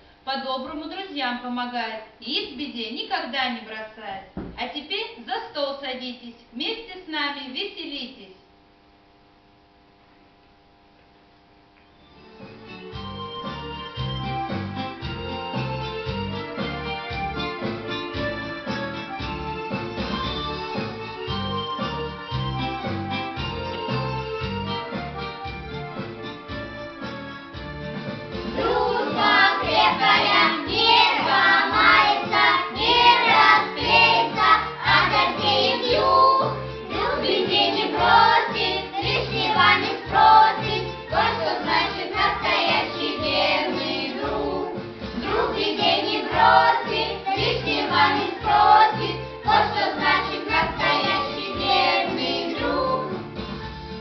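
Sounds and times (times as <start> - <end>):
music with steady beat: 12.1 - 54.0
children singing: 28.6 - 53.2.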